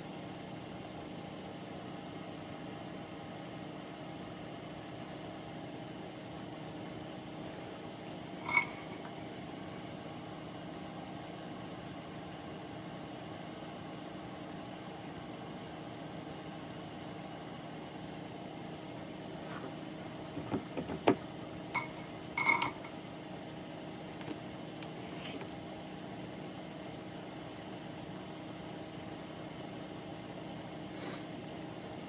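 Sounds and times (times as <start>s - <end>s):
electrical hum: 5.0s - 9.6s, 18.6s - 32.0s
small parts and tools tapping: 21.8s - 23.0s.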